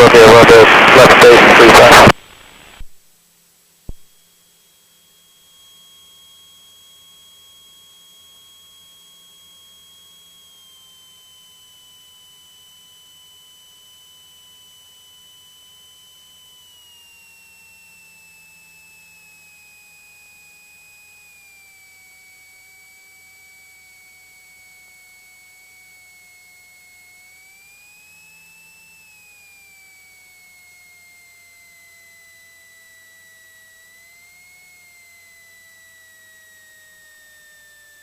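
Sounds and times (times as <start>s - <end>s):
high electrical whine: 0.0s - 38.0s.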